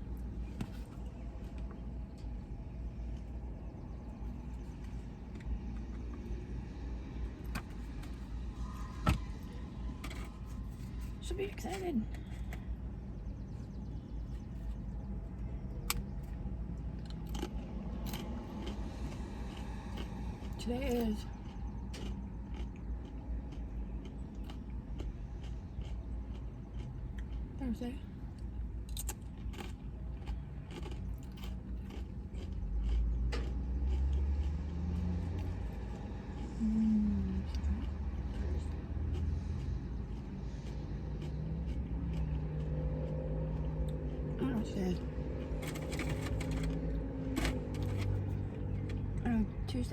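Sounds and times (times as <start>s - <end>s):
car engine idling: 41.9s - 49.9s.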